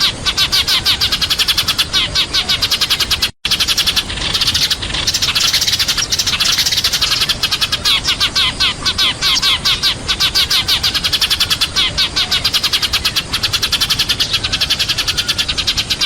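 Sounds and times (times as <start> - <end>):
sparrows chirping rapidly: 0.0 - 16.0.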